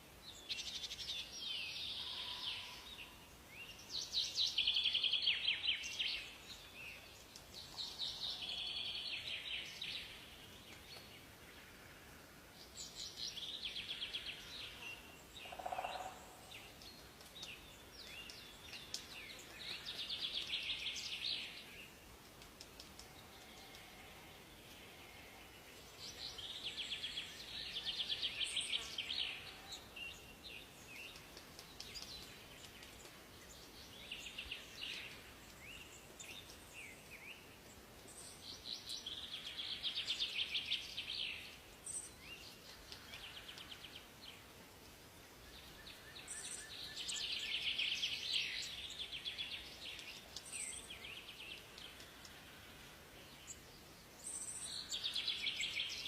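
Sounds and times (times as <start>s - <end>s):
faint forest hiss: 0.0s - 56.0s
songbird trilling song: 12.8s - 21.9s.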